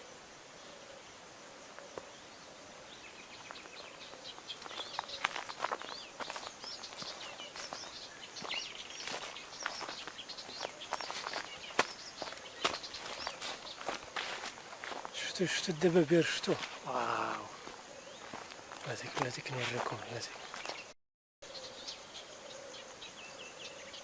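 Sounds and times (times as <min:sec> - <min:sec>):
small birds chirping: 0:00.0 - 0:24.0
footsteps crunching through dry brush: 0:03.3 - 0:20.9.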